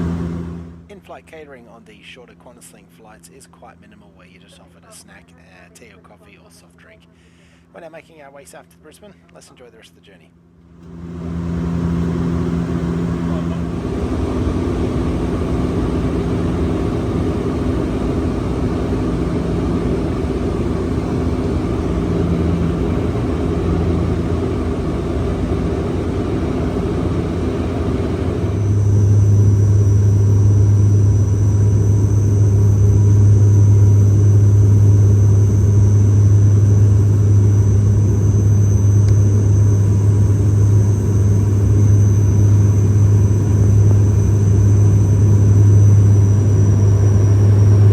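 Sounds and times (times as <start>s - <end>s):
aircraft cabin rumble: 0.0s - 1.0s, 10.8s - 47.9s
faint high whine: 0.0s - 47.9s
propeller drone: 0.0s - 47.9s.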